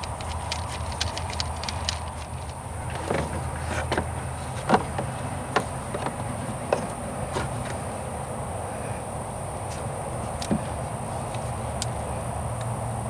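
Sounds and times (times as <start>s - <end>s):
clicks and knocks of tools: 0.0s - 7.8s
steady low hum: 0.0s - 13.0s.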